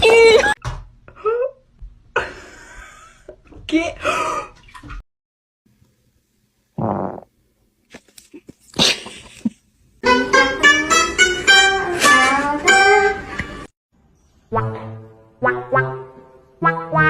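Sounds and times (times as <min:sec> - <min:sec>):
plucked-string music: 0:10.0 - 0:13.7, 0:14.5 - 0:17.0.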